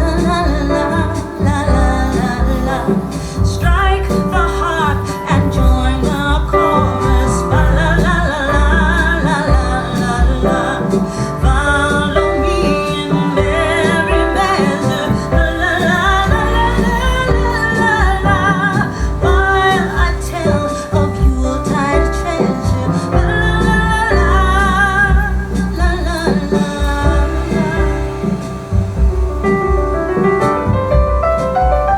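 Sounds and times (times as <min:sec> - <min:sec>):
woman singing: 0:00.0 - 0:29.0
deep bass: 0:00.0 - 0:31.3.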